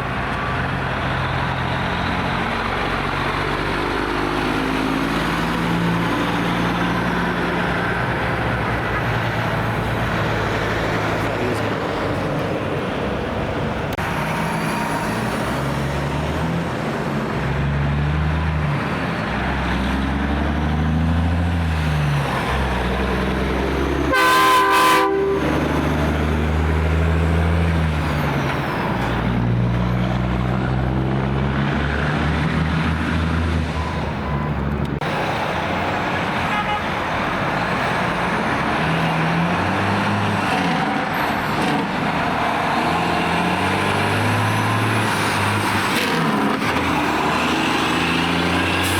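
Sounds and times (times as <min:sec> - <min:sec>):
diesel truck engines pulling away: 0:00.0 - 0:48.9
truck horn blast: 0:24.0 - 0:25.8, 0:36.4 - 0:37.0.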